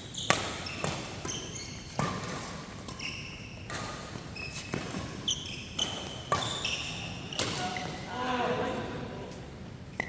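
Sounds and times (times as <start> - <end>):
shoes squeaking on court floor: 0.0 - 10.0
racket hitting shuttlecock: 0.2 - 8.0.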